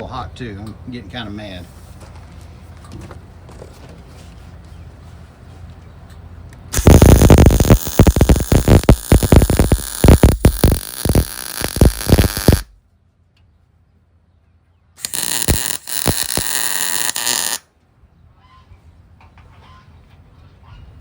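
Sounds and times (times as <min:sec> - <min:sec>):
welder arc crackling: 0:06.7 - 0:12.7, 0:15.0 - 0:17.6.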